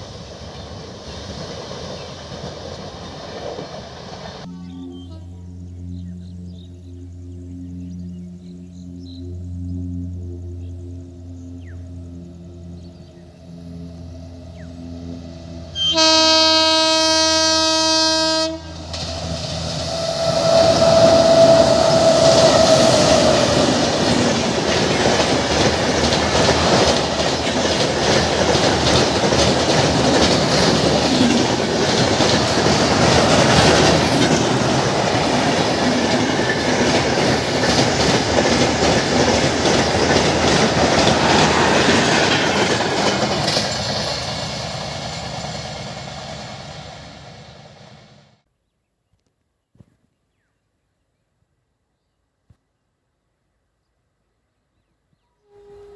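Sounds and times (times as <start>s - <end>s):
train horn: 15.7s - 19.0s, 19.8s - 24.3s, 55.4s - 55.9s
train wheels clattering on bridge: 20.3s - 47.0s.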